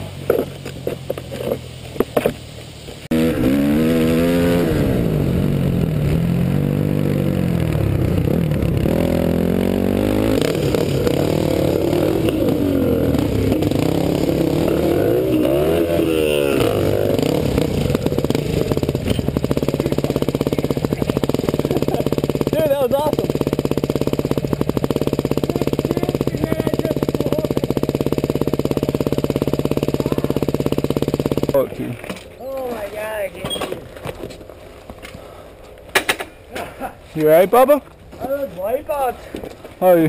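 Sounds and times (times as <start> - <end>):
dirt bike engine revving: 3.1 - 32.0.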